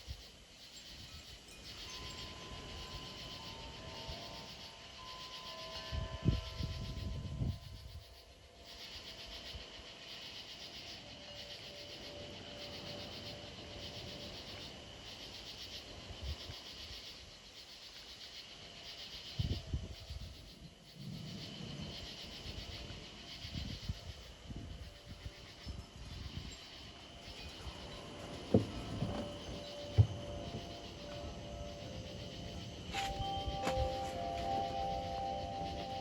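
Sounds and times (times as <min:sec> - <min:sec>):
insect chorus shrilling in pulses: 0:00.0 - 0:36.0
wind rumble on microphone: 0:05.7 - 0:08.2, 0:15.9 - 0:17.0, 0:19.3 - 0:36.0.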